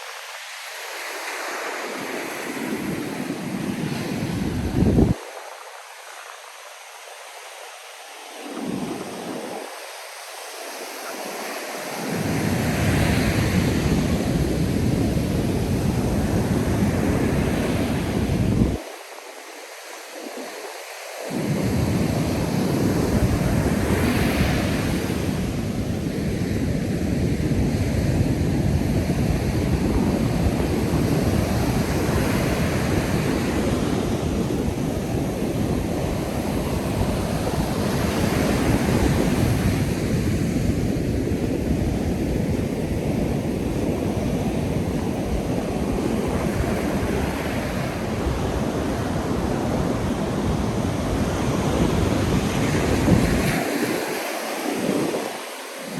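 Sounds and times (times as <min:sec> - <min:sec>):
waves breaking on beach: 0:00.0 - 0:55.9
wind buffeting microphone: 0:02.6 - 0:05.4, 0:21.3 - 0:53.8.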